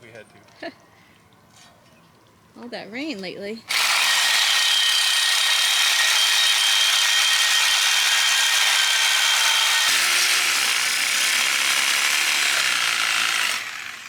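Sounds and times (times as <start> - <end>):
reciprocating saw cutting metal: 3.7 - 14.0.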